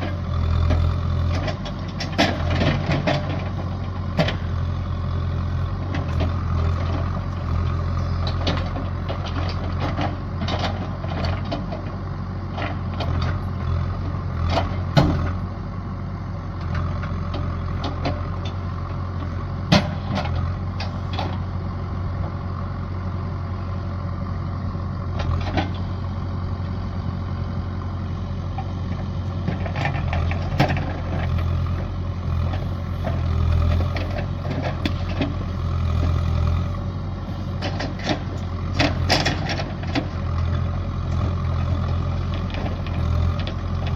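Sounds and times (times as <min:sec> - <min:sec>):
large engine running: 0:00.0 - 0:43.9.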